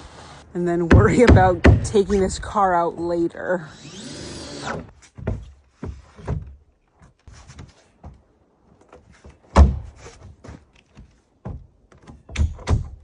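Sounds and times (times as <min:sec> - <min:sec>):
knocks and thumps on wood: 0:05.1 - 0:06.6, 0:08.9 - 0:13.0.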